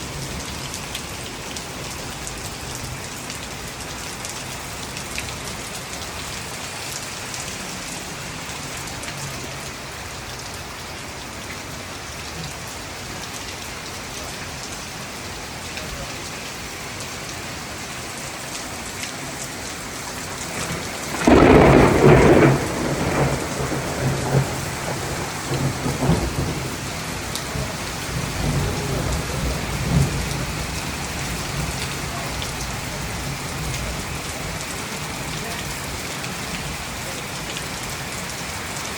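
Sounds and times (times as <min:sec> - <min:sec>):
steady rain falling: 0:00.0 - 0:38.9
thunderclap and rolling thunder: 0:20.4 - 0:34.0.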